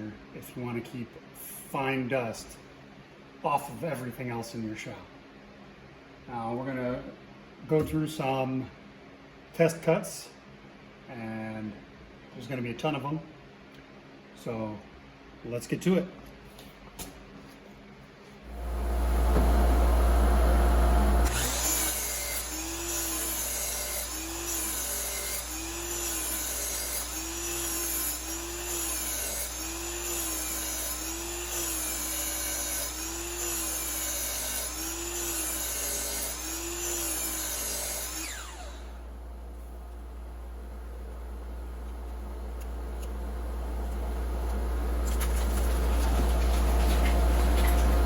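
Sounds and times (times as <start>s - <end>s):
dust collector hum: 18.4s - 48.0s
miter saw cutting: 20.9s - 39.1s.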